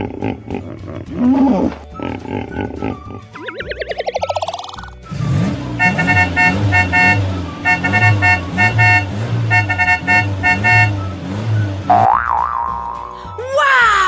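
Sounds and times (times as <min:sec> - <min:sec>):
rising tone: 0:03.4 - 0:05.7
cartoon car horns tooting: 0:05.2 - 0:12.2.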